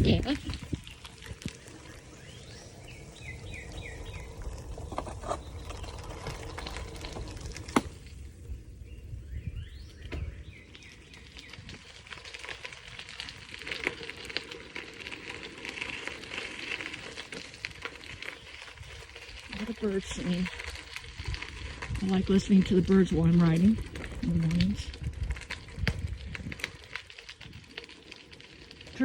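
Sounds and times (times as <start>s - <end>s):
songbirds chirping: 0.0s - 13.7s, 16.7s - 25.0s
bicycle rumbling on bumpy trail: 0.0s - 29.0s.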